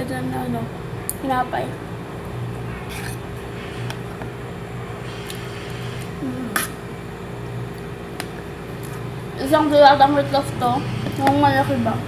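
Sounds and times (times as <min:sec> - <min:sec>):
steady low hum: 0:00.0 - 0:12.0
person chewing food: 0:02.8 - 0:03.2, 0:05.1 - 0:06.7.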